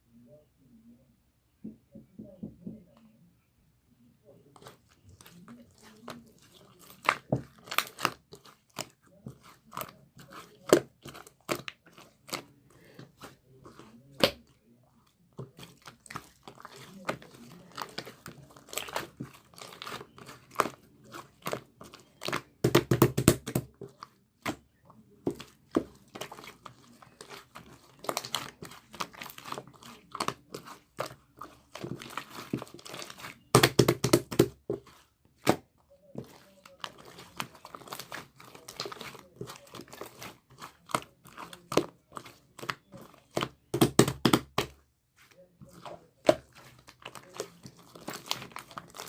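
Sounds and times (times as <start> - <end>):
slime squishing: 4.2 - 49.0
slime crackling and popping: 46.3 - 49.0.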